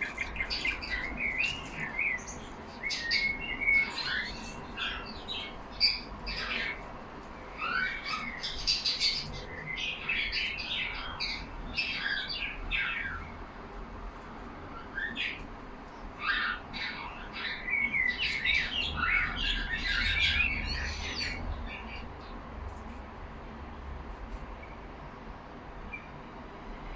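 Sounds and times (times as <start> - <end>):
budgerigars chattering and chirping: 0.0 - 13.3, 16.2 - 22.3.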